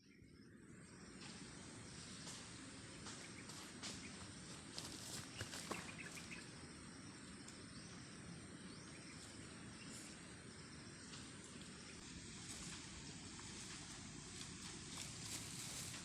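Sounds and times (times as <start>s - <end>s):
insects chirring: 0.1s - 16.0s
rustles: 1.2s - 6.6s, 9.0s - 16.0s.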